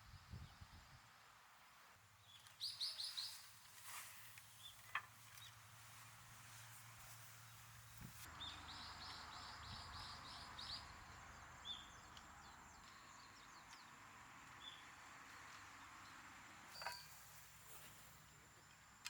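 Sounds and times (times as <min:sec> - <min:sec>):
faint birdsong chirps: 0:00.0 - 0:19.0.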